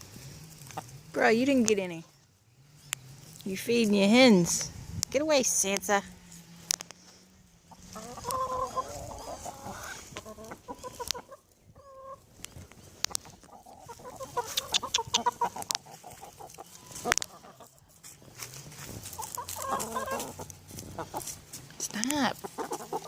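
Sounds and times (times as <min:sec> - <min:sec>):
chickens clucking: 0:00.5 - 0:02.2, 0:06.3 - 0:23.0
sharp clicks: 0:12.4 - 0:13.4, 0:14.4 - 0:15.8.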